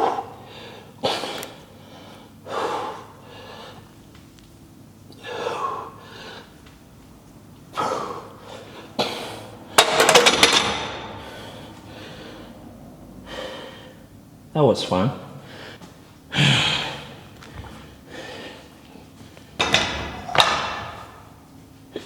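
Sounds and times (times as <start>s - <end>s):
man gasping exhales: 15.5s - 17.2s.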